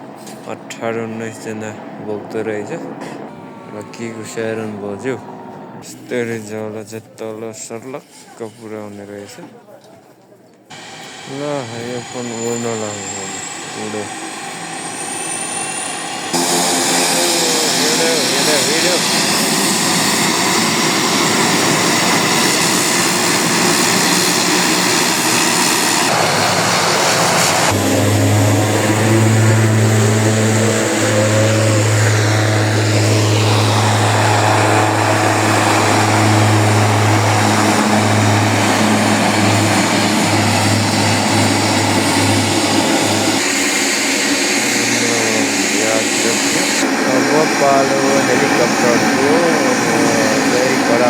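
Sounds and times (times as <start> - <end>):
aircraft engines rushing: 0.0 - 5.8, 10.7 - 51.0
steady low hum: 10.7 - 51.0.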